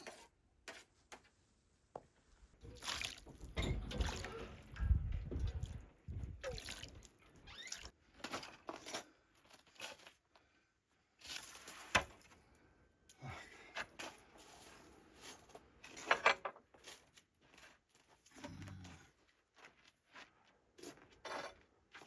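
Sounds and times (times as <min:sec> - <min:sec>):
water sloshing and splashing: 0:02.6 - 0:08.5.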